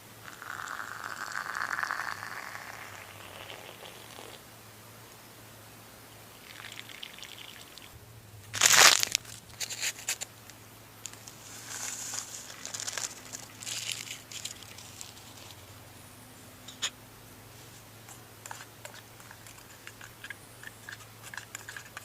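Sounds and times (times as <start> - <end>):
crinkling and rustling: 8.5 - 15.8, 17.6 - 22.0.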